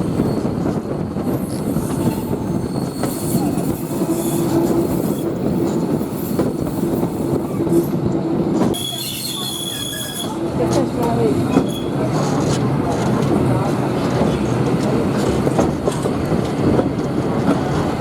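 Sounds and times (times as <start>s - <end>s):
train wheels rumbling on rails: 0.0s - 18.0s
high squeal: 8.8s - 10.4s.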